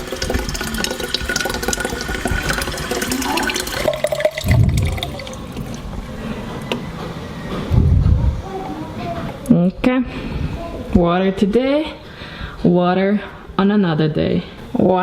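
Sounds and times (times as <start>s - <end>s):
tap water filling a bottle: 0.0s - 5.8s
low burst: 4.4s - 6.2s.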